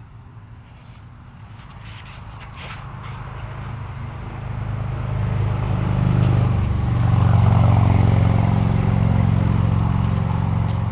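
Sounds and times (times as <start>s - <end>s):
four-stroke engine running: 2.8s - 10.9s.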